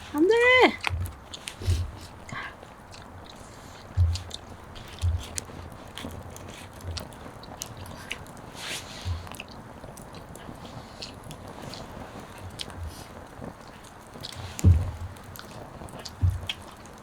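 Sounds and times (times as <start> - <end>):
soft low thumps: 0.0 - 6.2, 9.1 - 9.4, 14.4 - 15.6, 16.2 - 16.8
person chewing food: 0.0 - 17.0.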